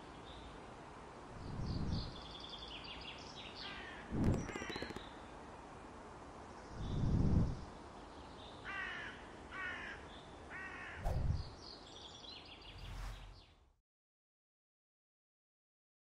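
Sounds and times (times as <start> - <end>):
outdoor background hiss: 0.0 - 13.8
short bird calls: 3.6 - 5.2.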